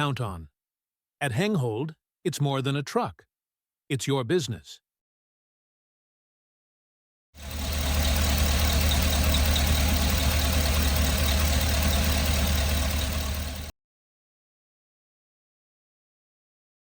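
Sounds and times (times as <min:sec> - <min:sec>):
truck engine idling: 0:07.4 - 0:13.7.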